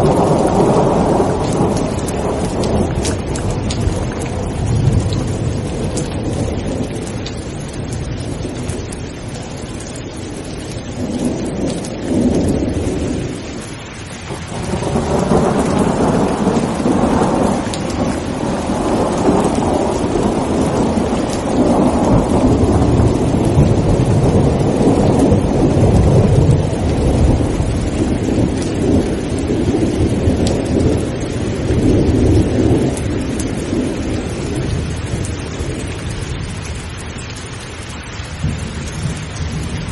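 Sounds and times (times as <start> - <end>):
rolling thunder: 0.0 - 36.8, 38.3 - 39.9
heavy rain: 0.0 - 39.9.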